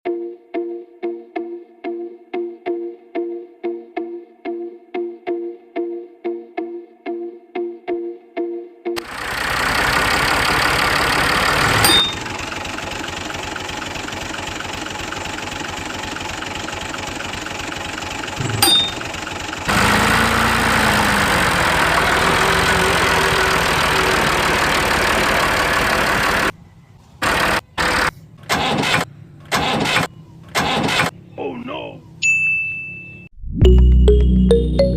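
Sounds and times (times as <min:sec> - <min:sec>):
engine running: 0:09.0 - 0:31.3.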